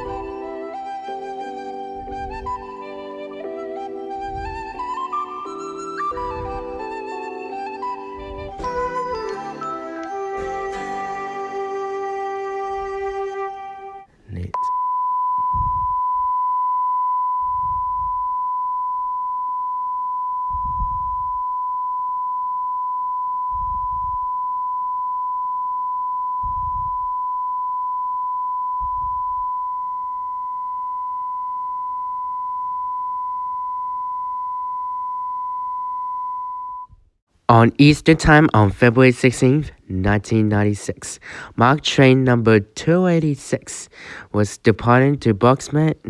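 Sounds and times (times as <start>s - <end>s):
music: 0.0s - 14.1s
steady electronic beep tone: 14.6s - 36.9s.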